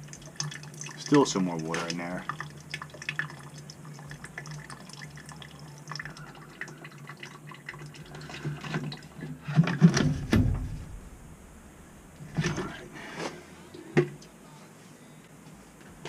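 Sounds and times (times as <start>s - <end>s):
water dripping and trickling: 0.0s - 9.4s
pump knocking and rattling: 8.0s - 11.0s.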